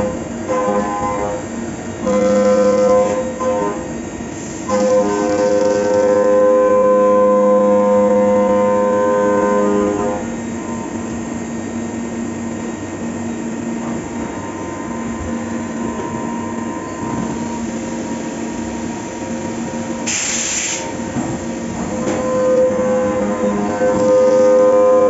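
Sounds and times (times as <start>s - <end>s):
milling machine cutting metal: 2.0s - 3.9s, 4.7s - 10.2s, 21.9s - 25.0s
burst of hiss: 20.0s - 20.9s.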